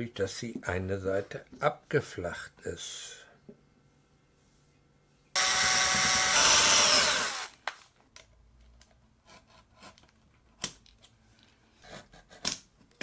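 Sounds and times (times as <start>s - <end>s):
electric power tool running: 5.4s - 7.6s.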